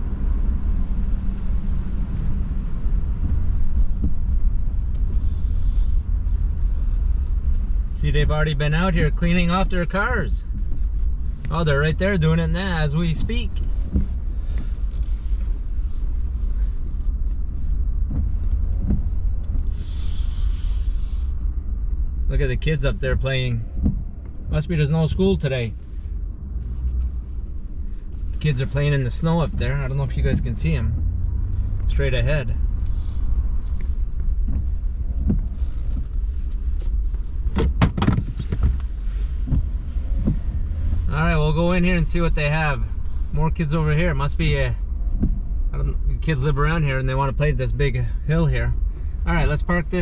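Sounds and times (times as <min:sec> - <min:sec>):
vehicle engine and tyres rumbling: 0:00.0 - 0:50.0
hiss: 0:19.7 - 0:21.3.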